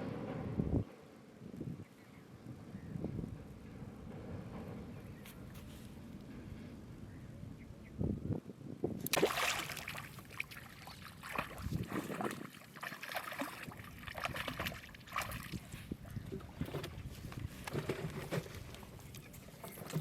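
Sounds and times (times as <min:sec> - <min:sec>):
river water splashing: 0:09.0 - 0:15.8.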